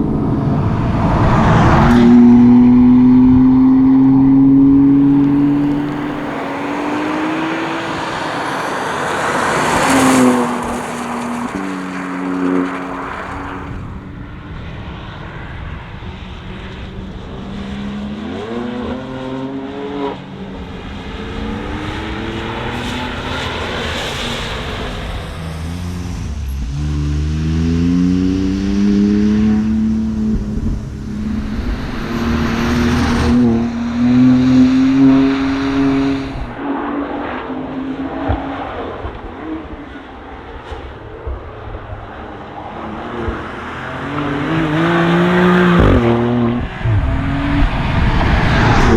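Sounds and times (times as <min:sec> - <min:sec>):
car engine revving through gears: 0:00.0 - 0:14.0, 0:17.9 - 0:48.9.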